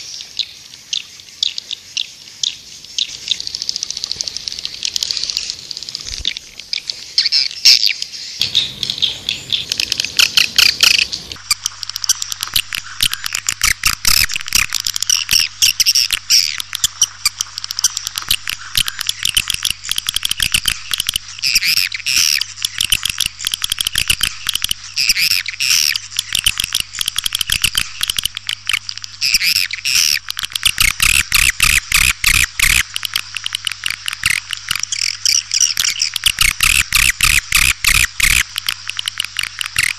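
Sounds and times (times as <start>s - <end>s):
swiftlets chirping and twittering: 3.0s - 39.9s
faint low hum: 8.4s - 39.9s.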